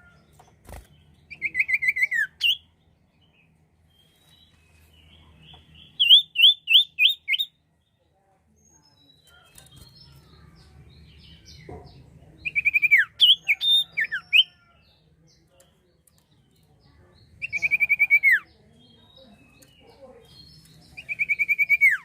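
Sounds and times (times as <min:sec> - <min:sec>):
songbird chirping: 0:00.0 - 0:22.0.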